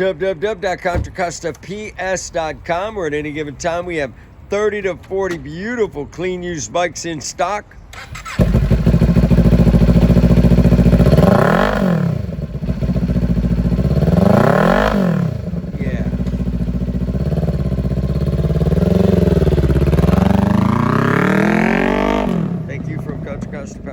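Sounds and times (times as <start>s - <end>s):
motorcycle engine idling and revving: 8.0s - 23.9s.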